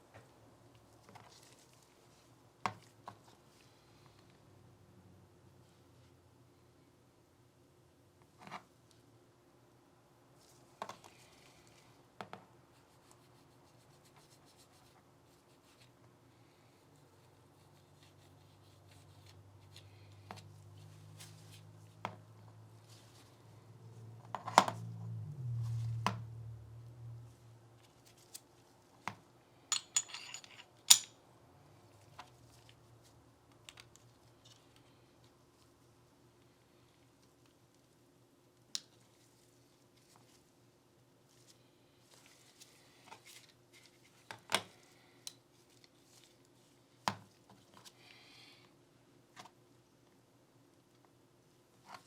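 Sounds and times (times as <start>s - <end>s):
low hum: 22.4s - 27.8s.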